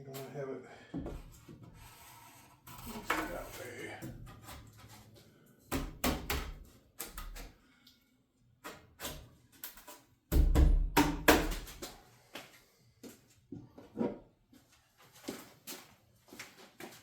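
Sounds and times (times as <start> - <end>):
knocks and clunks of building work: 0.1 - 7.6, 8.6 - 12.5, 13.5 - 14.4.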